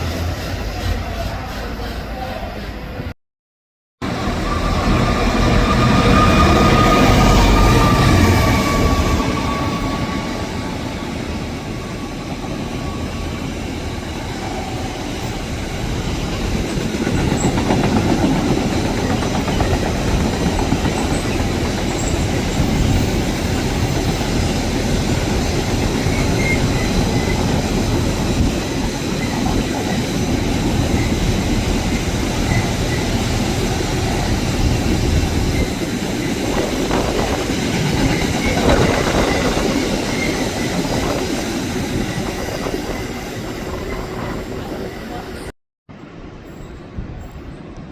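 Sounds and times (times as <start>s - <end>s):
train wheels rumbling: 4.0s - 45.5s
clickety-clack over rail joints: 16.3s - 24.2s.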